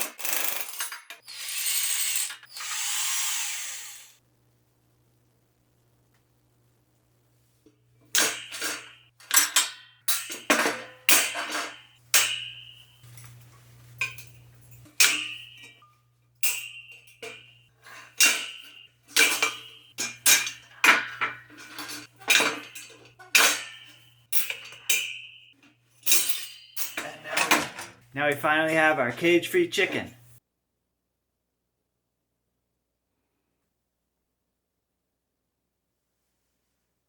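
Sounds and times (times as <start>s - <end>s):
metal clanks and rattles: 8.1s - 28.1s.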